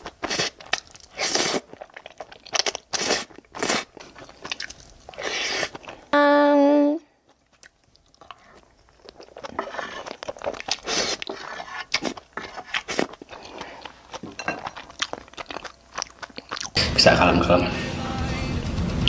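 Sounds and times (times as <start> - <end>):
person chewing crunchy food: 0.0 - 6.2, 7.1 - 16.8
loud steady tone: 16.8 - 19.0.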